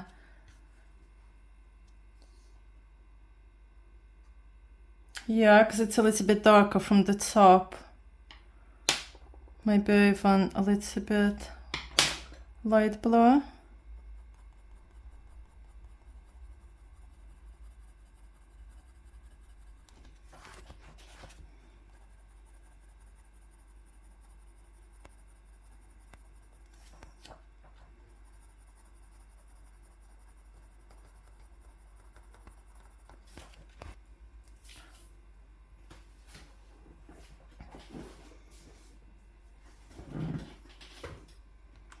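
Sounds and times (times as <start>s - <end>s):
colouring strokes on paper: 12.6s - 34.0s.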